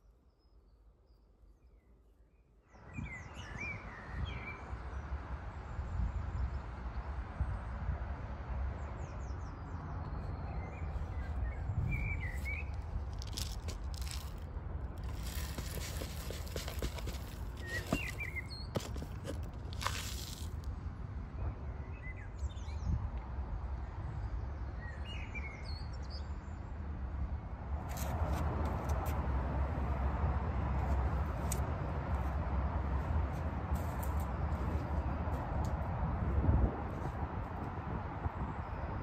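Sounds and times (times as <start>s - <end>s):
small birds chirping: 8.8s - 14.5s, 15.1s - 20.5s.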